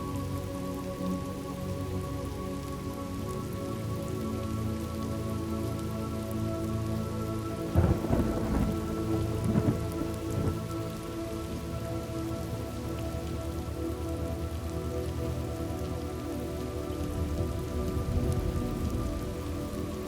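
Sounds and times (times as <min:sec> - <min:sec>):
steady rain falling: 0:00.0 - 0:20.0
thunderclap rumbling: 0:07.8 - 0:10.7.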